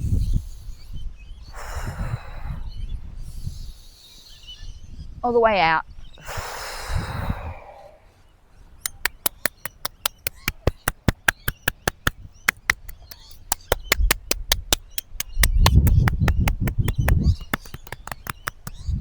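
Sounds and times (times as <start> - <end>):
long breath out: 1.4 - 4.4, 6.2 - 8.3
sharp clicks: 8.9 - 18.9.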